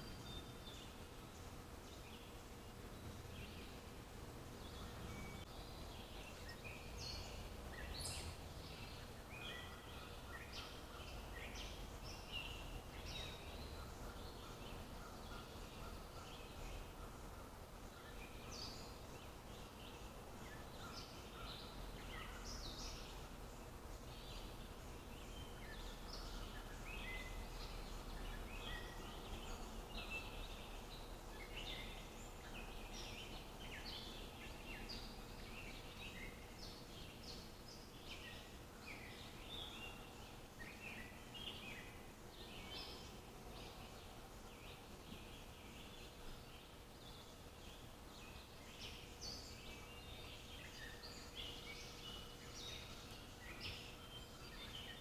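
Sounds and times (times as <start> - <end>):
faint low outdoor rumble: 0.0 - 55.0
birds chirping and singing: 4.5 - 55.0.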